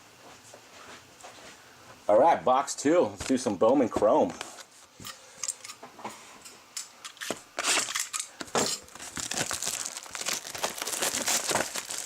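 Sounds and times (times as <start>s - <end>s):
plastic shrink wrap crinkling: 7.9s - 12.0s.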